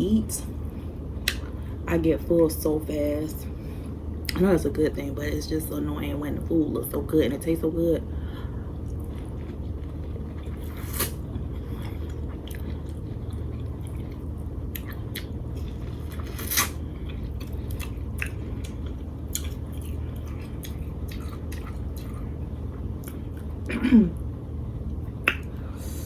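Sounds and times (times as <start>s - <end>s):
chewing with wet mouth clicks: 8.8s - 22.4s, 23.0s - 23.5s, 25.2s - 25.6s.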